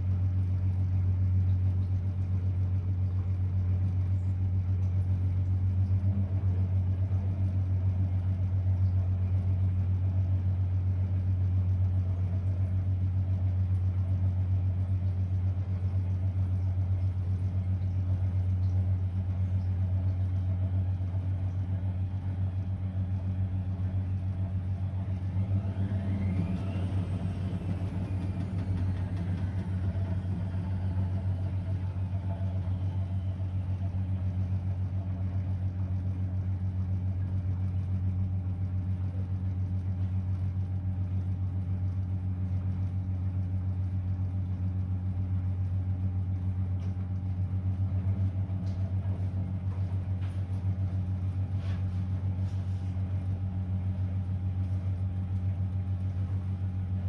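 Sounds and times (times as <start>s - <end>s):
washing machine humming: 0.0s - 57.0s
faint whine: 19.8s - 35.6s.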